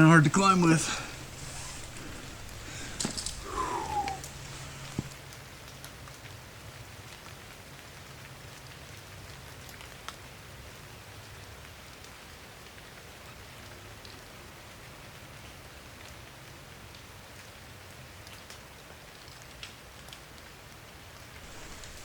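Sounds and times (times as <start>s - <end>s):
raindrops ticking close by: 0.0s - 5.2s, 21.4s - 22.0s
steady rain falling: 0.0s - 6.2s, 21.4s - 22.0s.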